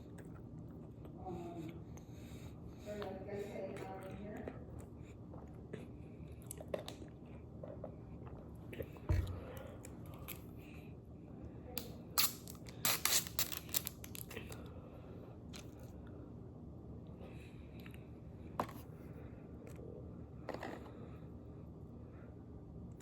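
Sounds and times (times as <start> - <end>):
paper packaging crinkling: 12.4 - 14.4.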